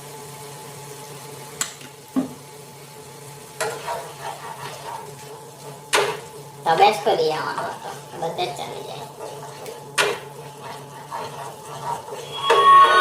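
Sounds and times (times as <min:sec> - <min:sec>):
onion and garlic frying in oil: 0:00.0 - 0:13.0
spatula scraping in a pan: 0:03.5 - 0:13.0.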